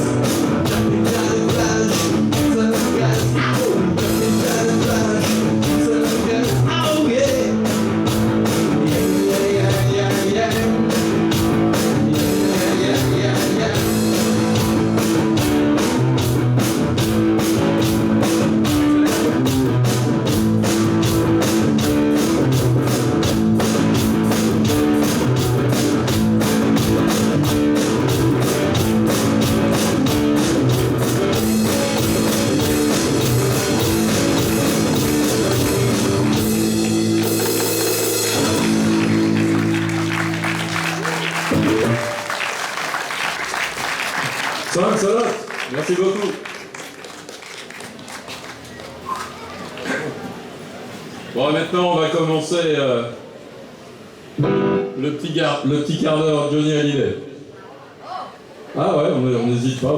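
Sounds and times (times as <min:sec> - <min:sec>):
bass guitar: 0:00.0 - 0:42.4
drum kit steady beat: 0:00.0 - 0:42.4
electric guitars: 0:00.0 - 0:42.7, 0:54.4 - 0:55.0.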